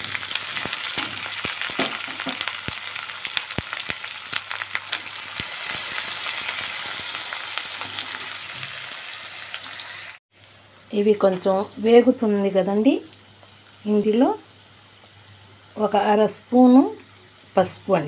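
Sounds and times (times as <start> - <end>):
oil popping and crackling: 0.0 - 10.1
food sizzling in hot oil: 0.0 - 18.0.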